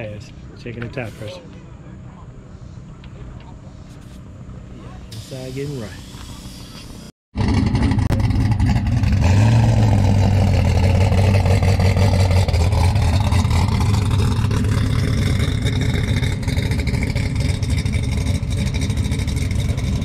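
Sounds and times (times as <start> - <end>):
race car engine rough idle: 6.2 - 20.0.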